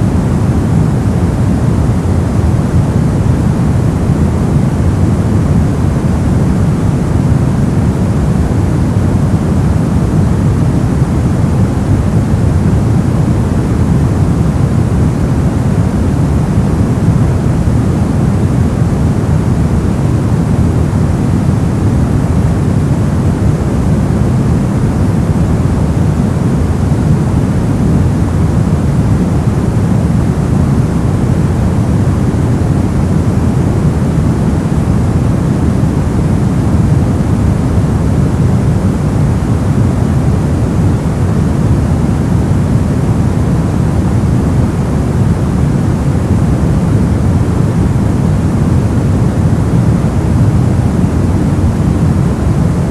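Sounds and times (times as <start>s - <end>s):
brown noise: 0.0s - 52.9s.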